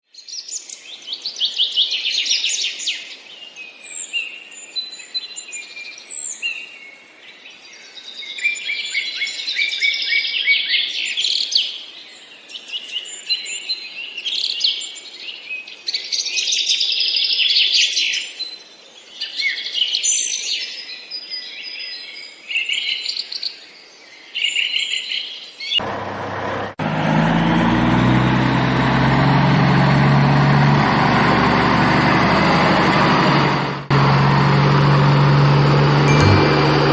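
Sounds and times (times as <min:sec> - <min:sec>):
low engine-like drone: 0:31.5 - 0:36.9.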